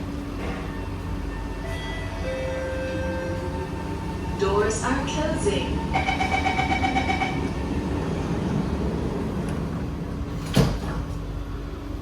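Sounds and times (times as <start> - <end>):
train humming: 0.0 - 12.0
train door chime beeps: 0.7 - 3.7, 5.4 - 7.8
sliding doors thudding shut: 8.8 - 11.3.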